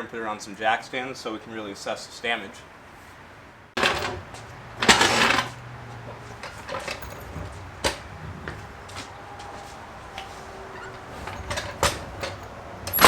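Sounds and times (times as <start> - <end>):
clatter and rattling: 3.8 - 13.0.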